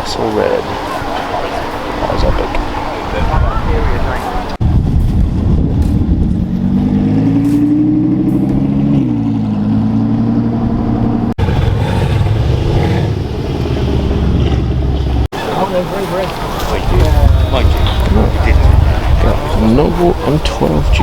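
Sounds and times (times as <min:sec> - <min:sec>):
low engine rumble: 0:01.2 - 0:15.3
car engine accelerating: 0:06.0 - 0:15.3.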